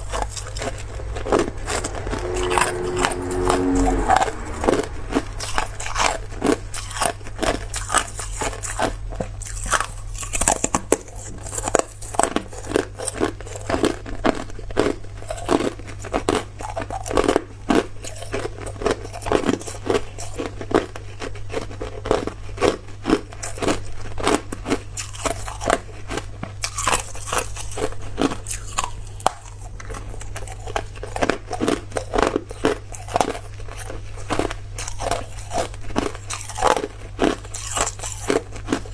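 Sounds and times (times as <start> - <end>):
person crunching ice: 34.8 - 38.9.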